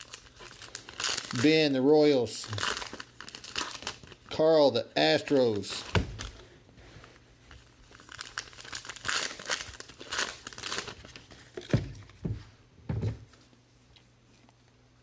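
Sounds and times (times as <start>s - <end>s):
card wrappers crinkling and tearing: 0.0s - 6.4s, 7.6s - 11.8s.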